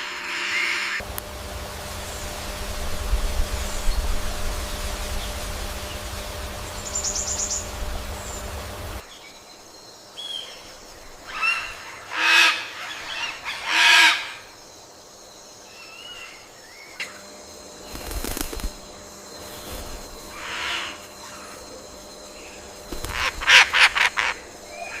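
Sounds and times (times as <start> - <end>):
low rumbling noise: 0.9 - 9.0
harsh bird calls: 3.5 - 9.1, 17.8 - 25.0.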